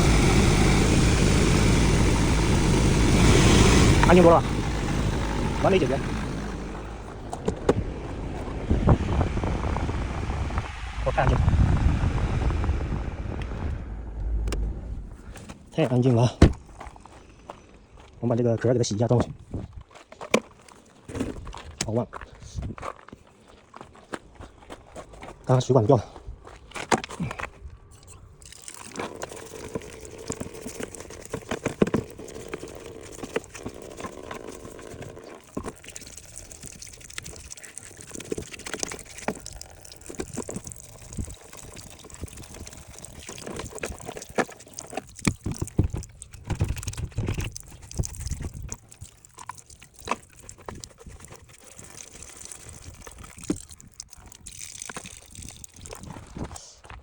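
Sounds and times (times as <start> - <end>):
water running and trickling: 28.4 - 56.2.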